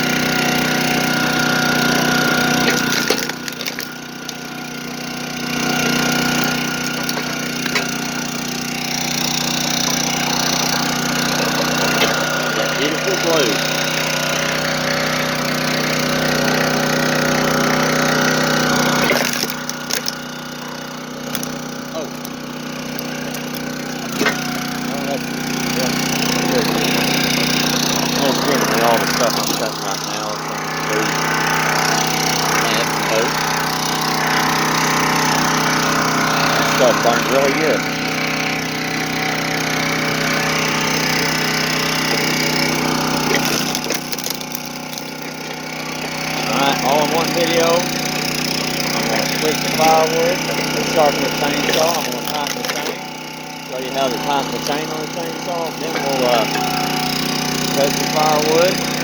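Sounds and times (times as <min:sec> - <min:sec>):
small gasoline engine running: 0:00.0 - 0:59.0
sharp cracks and knocks: 0:02.2 - 0:04.5, 0:05.6 - 0:08.2, 0:11.7 - 0:12.4, 0:18.8 - 0:20.3, 0:21.2 - 0:24.6, 0:28.9 - 0:29.7, 0:43.2 - 0:45.4, 0:51.5 - 0:53.0.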